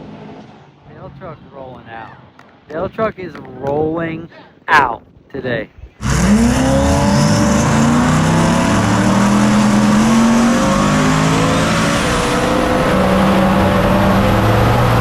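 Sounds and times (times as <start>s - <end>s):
truck engine at full throttle: 6.0s - 15.0s.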